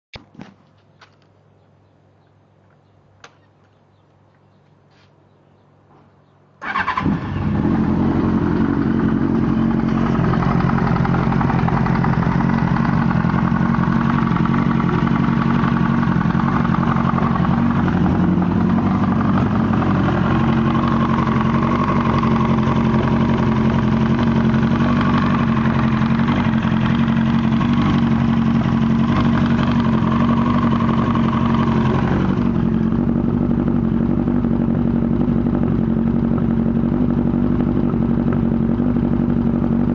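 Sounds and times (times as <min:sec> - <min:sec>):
motorcycle engine starting and idling: 0:06.6 - 0:39.9
engine knocking: 0:10.0 - 0:17.7.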